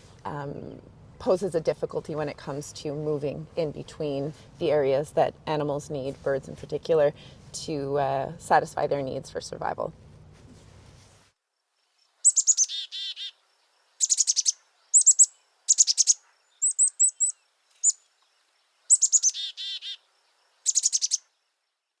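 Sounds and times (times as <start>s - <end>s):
songbird chirping: 11.6s - 22.0s.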